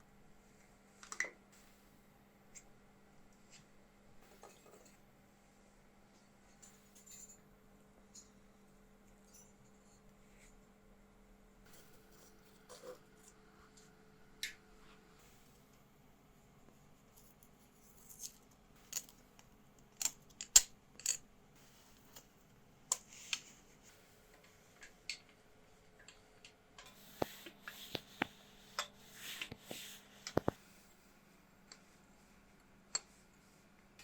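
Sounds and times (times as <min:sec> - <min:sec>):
faint steady hum: 0:00.0 - 0:34.0
metal tools clicking and clinking: 0:20.0 - 0:21.2.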